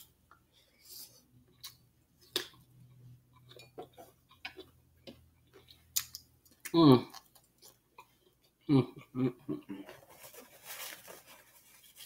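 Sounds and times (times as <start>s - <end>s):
chewing clicks and smacks: 1.6s - 8.1s.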